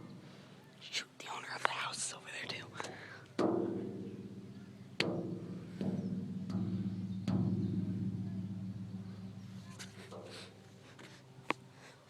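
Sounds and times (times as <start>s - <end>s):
metal drum struck: 3.4s - 10.6s
low steady ringing: 3.4s - 11.4s.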